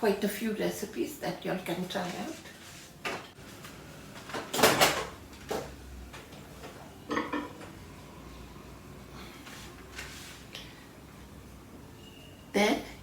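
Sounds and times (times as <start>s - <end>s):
dish knocking and clattering: 7.1s - 7.7s.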